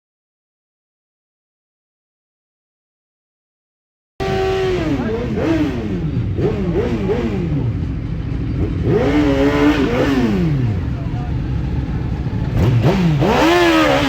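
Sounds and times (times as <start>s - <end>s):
motorcycle engine revving: 4.2s - 14.0s.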